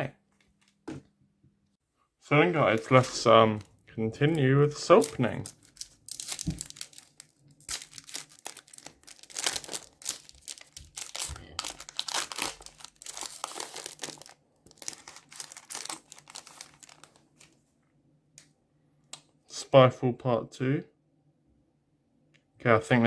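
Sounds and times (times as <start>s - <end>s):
wrapper crinkling and tearing: 2.7s - 17.6s.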